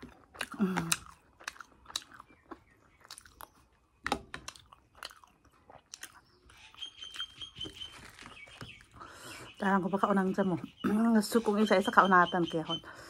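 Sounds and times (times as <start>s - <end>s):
wet mouth smacks and clicks: 0.0s - 2.3s
person chewing food: 0.0s - 9.3s.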